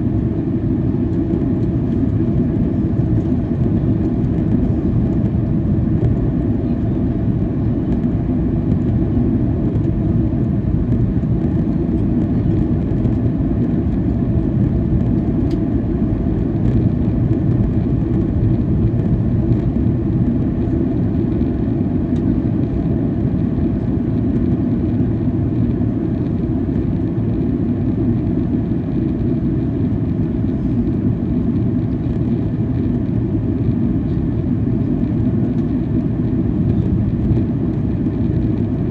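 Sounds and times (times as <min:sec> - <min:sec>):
airplane cabin drone: 0:00.0 - 0:38.9.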